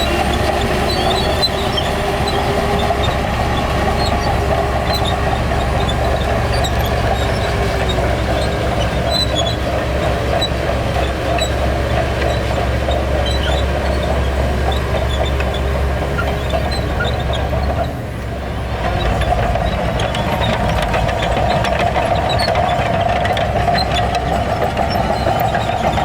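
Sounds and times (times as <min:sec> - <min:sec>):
diesel machinery engine drone: 0:00.0 - 0:26.0.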